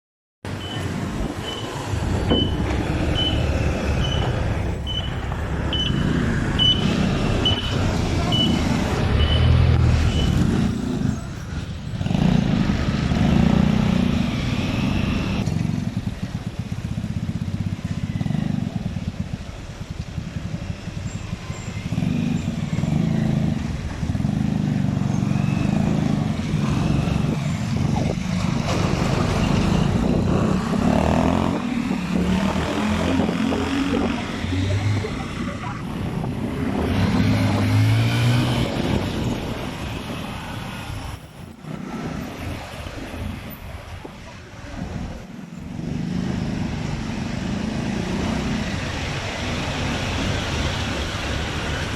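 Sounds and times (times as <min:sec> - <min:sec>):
short high beeps: 0:04.0 - 0:08.6.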